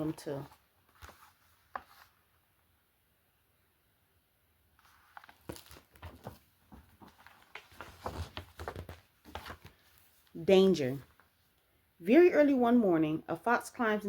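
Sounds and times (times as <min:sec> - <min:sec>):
paper pages crinkling and rustling: 0:00.3 - 0:02.3, 0:04.8 - 0:10.4.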